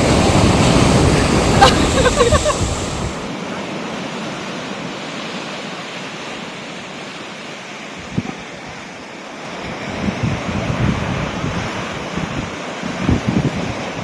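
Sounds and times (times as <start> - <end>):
wind buffeting microphone: 0.0 - 3.3
sea waves washing ashore: 0.0 - 14.0.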